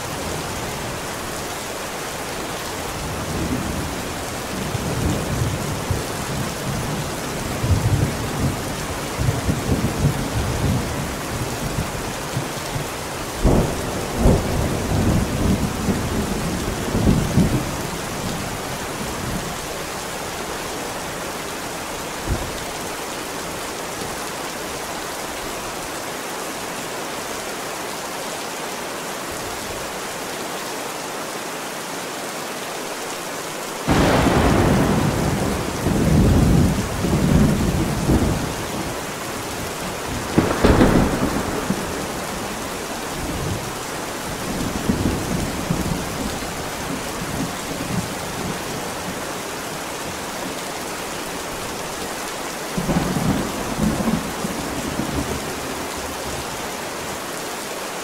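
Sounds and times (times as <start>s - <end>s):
heavy rain: 0.0s - 58.0s
loud thunderclap: 33.9s - 38.6s, 40.1s - 42.7s
thunder rumbling: 33.9s - 49.2s.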